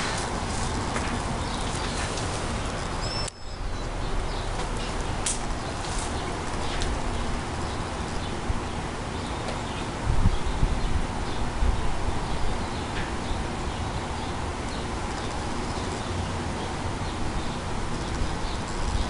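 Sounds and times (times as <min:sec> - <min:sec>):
short high chirp: 0:03.0 - 0:03.7.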